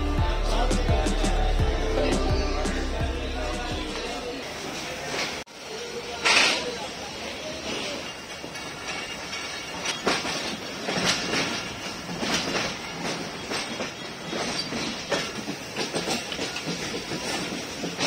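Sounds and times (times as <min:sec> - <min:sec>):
train wheels rumbling on rail: 0:03.6 - 0:18.0
wheels clacking over rail joints: 0:07.6 - 0:18.0.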